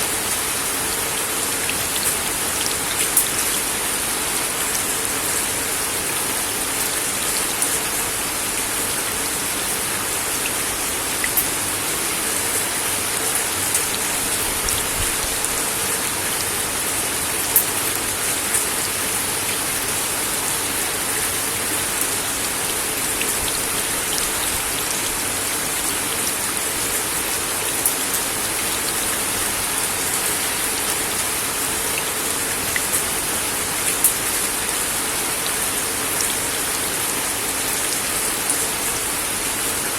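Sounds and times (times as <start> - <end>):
rain on a wooden deck: 0.0 - 39.9.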